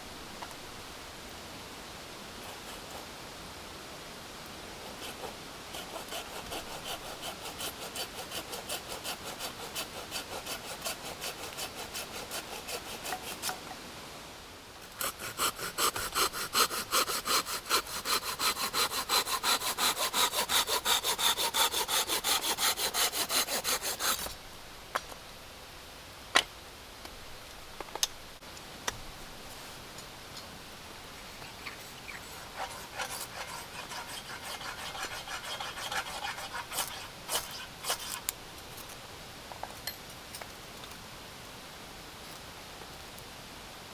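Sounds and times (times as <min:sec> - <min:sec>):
hand saw cutting wood: 0:04.8 - 0:13.6, 0:14.8 - 0:24.4, 0:31.4 - 0:38.4.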